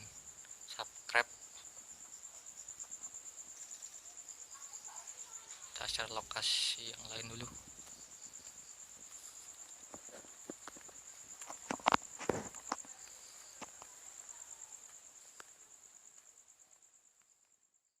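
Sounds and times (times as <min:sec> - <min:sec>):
night insects trilling: 0:00.0 - 0:18.0
knocks and rustles: 0:07.3 - 0:14.0.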